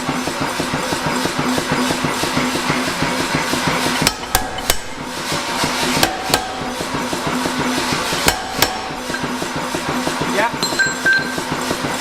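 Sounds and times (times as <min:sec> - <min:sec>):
hammer striking steel on anvil: 0:04.0 - 0:05.0, 0:06.0 - 0:09.5, 0:10.5 - 0:11.8.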